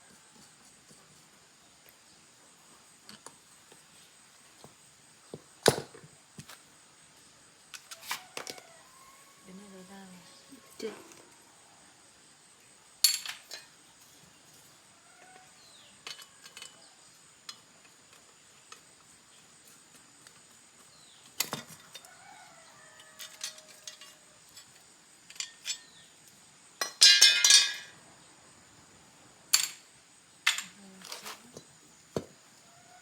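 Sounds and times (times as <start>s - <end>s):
metallic clinks of tools: 26.8s - 27.9s.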